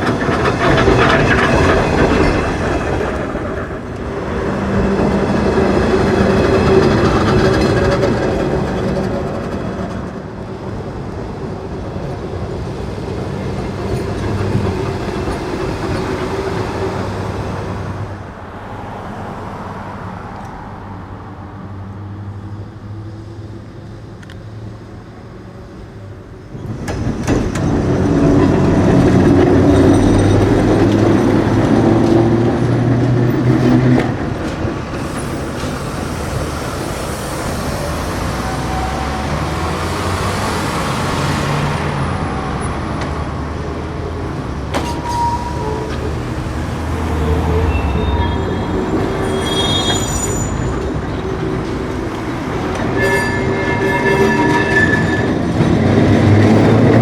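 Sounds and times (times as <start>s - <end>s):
streetcar wheels rumbling on track: 0.0s - 57.0s
short high squeal: 44.8s - 46.0s, 47.2s - 50.9s, 53.0s - 55.4s.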